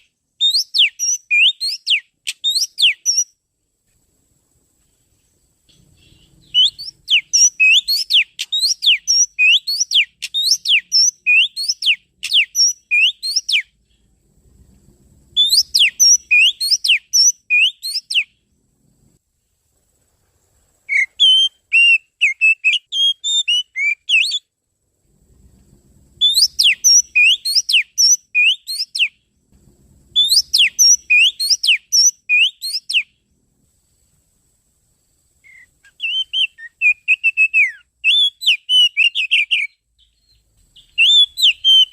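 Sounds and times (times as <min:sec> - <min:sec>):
magpie-robin song: 0:00.0 - 0:03.3, 0:05.7 - 0:13.7, 0:15.4 - 0:18.3, 0:26.2 - 0:29.2, 0:30.2 - 0:33.1, 0:35.4 - 0:41.9.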